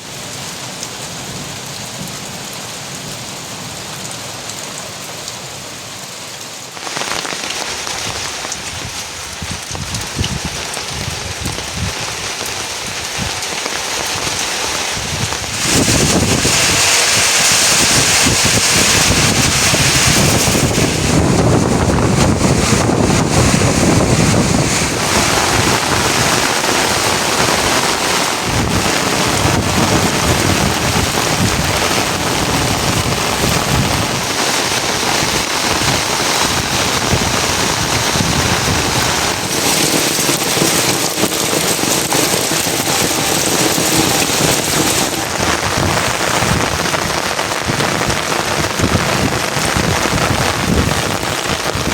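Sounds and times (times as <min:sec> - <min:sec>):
heavy rainfall: 0:00.0 - 0:51.9.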